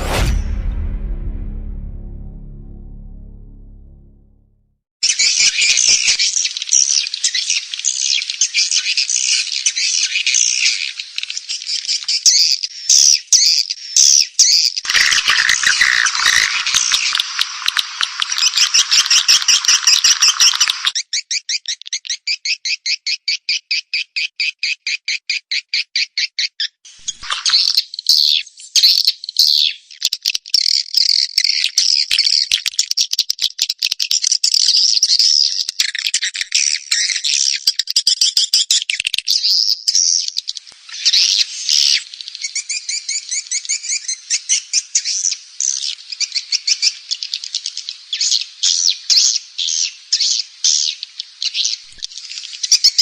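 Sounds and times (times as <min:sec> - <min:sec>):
recorded swiftlet calls: 0:14.9 - 0:21.0, 0:27.0 - 0:27.8.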